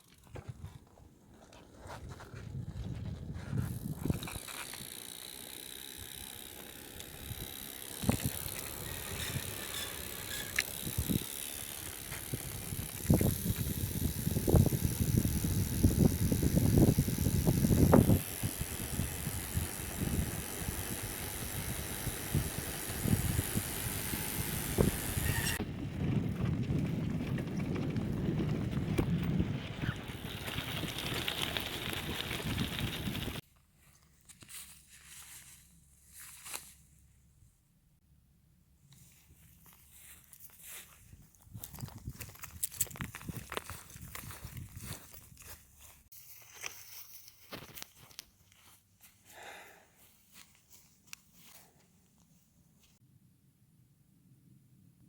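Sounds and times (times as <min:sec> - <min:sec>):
bicycle parts rattling over bumps: 0:00.0 - 0:33.4, 0:41.5 - 0:45.9.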